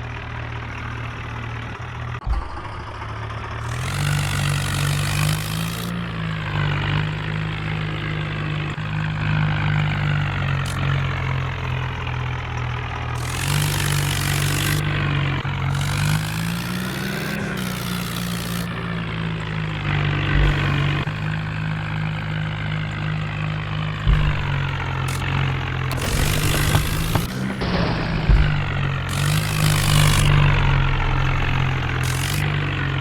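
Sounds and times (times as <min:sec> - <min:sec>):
tractor engine revving: 0:00.0 - 0:33.0
single knock: 0:24.1 - 0:25.0, 0:26.0 - 0:32.4.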